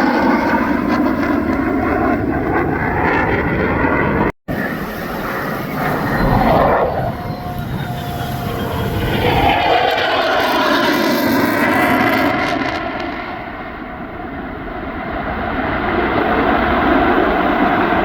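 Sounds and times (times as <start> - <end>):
jet engine roaring in flight: 0.0 - 18.0.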